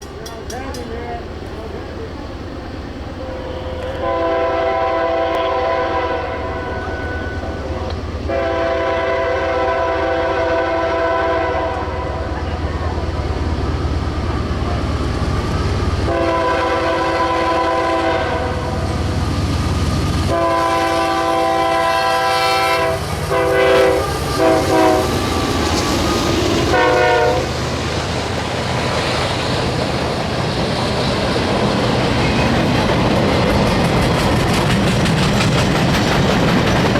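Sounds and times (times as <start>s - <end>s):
train wheel clatter: 0.0s - 2.2s, 11.4s - 36.9s
diesel locomotive rumble: 0.0s - 36.9s
locomotive horn blasts: 3.2s - 12.3s, 16.0s - 18.8s, 20.3s - 25.3s, 26.7s - 27.5s.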